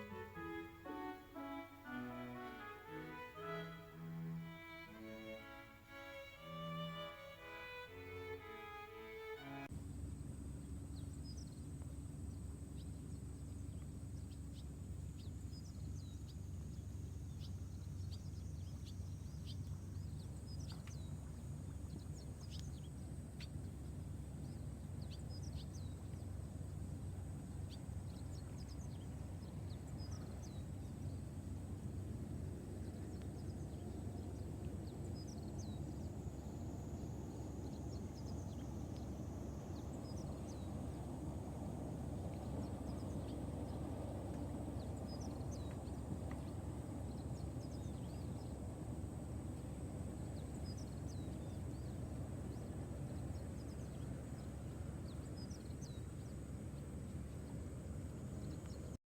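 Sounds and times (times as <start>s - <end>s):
faint high whine: 0.0s - 11.7s
low background rumble: 0.0s - 59.0s.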